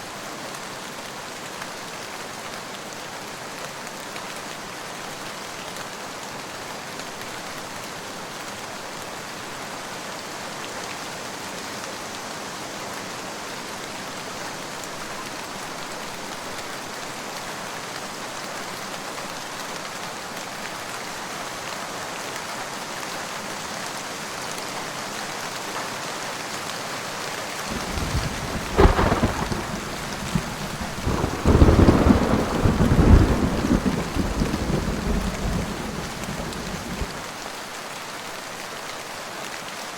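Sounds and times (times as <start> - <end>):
steady rain falling: 0.0 - 39.9
thunder rumble and crack: 27.7 - 37.3.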